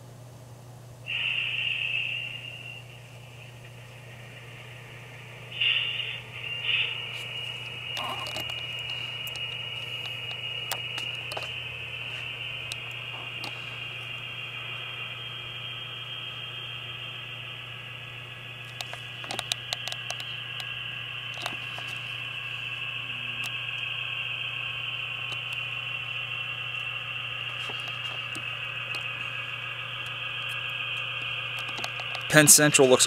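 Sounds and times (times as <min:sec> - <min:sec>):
diesel engine sound through speaker: 0:03.4 - 0:15.6, 0:18.4 - 0:33.0
sharp clicks: 0:05.6 - 0:14.0, 0:18.7 - 0:22.8, 0:26.7 - 0:33.0.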